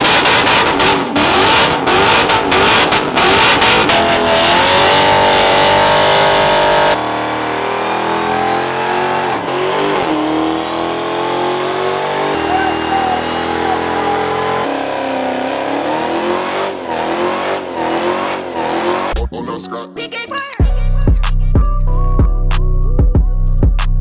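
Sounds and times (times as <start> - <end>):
car engines revving hard: 0.0 - 19.2
quieter engine revving: 0.0 - 19.2.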